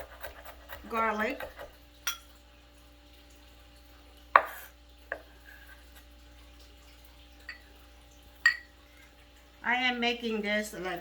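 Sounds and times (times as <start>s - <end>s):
knife knocking on cutting board: 4.4s - 5.2s.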